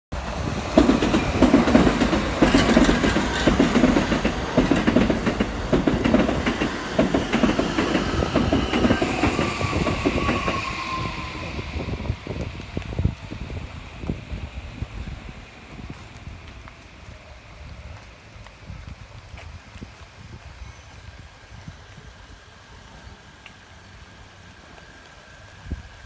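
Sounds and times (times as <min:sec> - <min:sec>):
train motor whine: 0:00.5 - 0:15.2
train wheels clattering over rail joints: 0:00.6 - 0:10.6.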